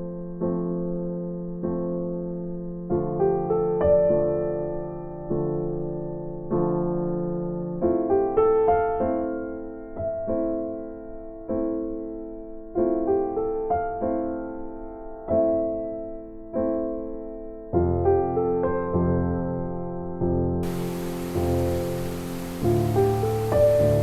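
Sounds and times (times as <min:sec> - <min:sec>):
gentle piano chords: 0:20.6 - 0:24.0.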